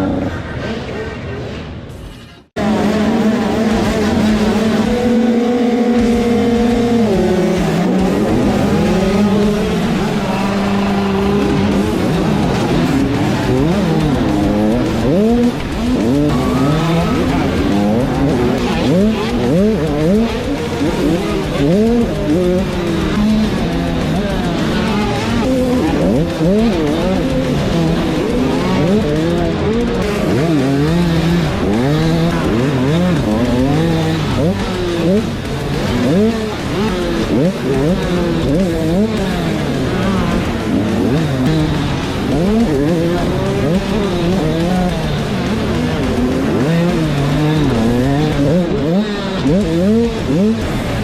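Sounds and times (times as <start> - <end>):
dirt bike engines revving: 0.0 - 51.0.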